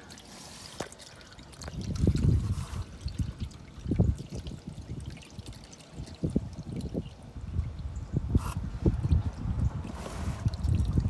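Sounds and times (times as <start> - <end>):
oil pouring and gurgling: 0.0 - 11.0.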